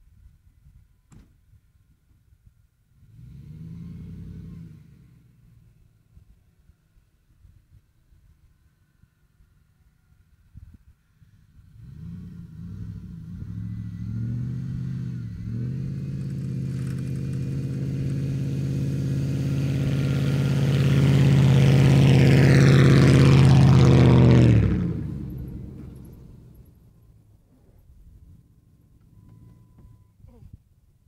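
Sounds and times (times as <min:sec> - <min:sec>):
truck engine pulling uphill: 0:11.3 - 0:30.0.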